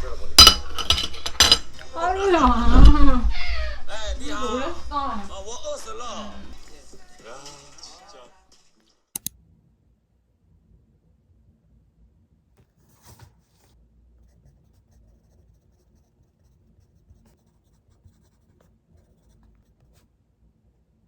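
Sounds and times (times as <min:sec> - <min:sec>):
soft scratching and rubbing: 0:12.6 - 0:20.1.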